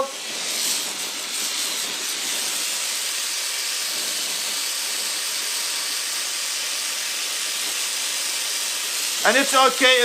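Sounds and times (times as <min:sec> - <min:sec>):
torch flame hissing: 0:00.0 - 0:10.0.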